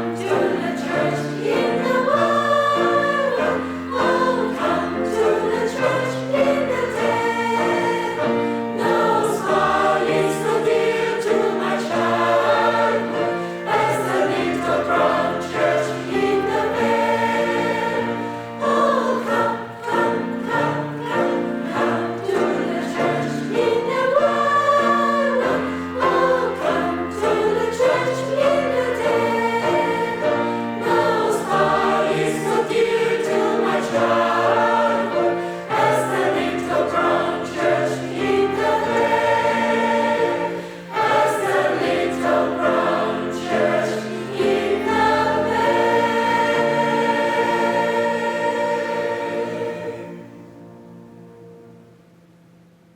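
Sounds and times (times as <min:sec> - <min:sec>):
choir singing: 0:00.0 - 0:51.2.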